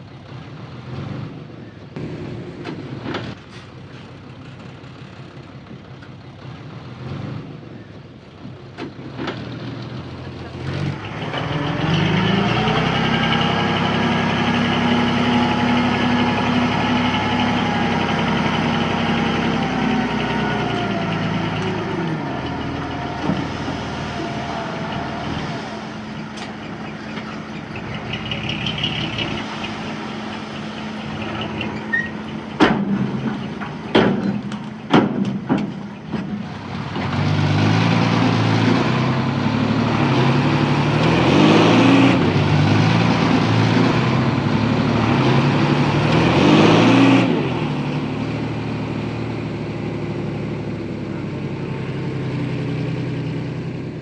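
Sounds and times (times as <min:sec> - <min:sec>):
heavy diesel engine running: 0:00.0 - 0:54.0
sharp knocks: 0:32.6 - 0:36.5.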